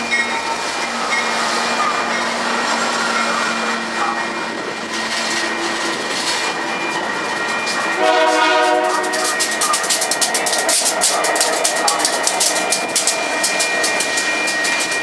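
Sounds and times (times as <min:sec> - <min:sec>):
train wheels clattering: 0:00.0 - 0:15.0
train horn blast: 0:08.0 - 0:09.4.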